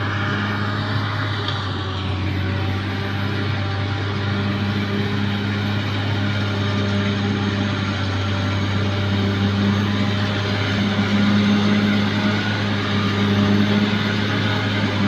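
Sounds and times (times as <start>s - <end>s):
bulldozer diesel engine drone: 0.0s - 15.0s.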